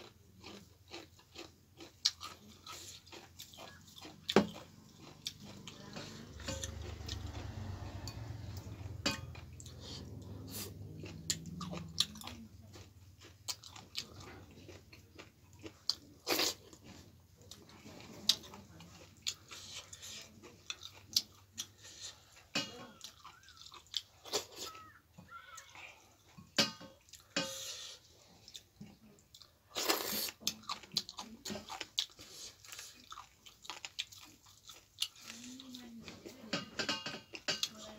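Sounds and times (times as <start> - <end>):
person chewing food: 0.0 - 37.9.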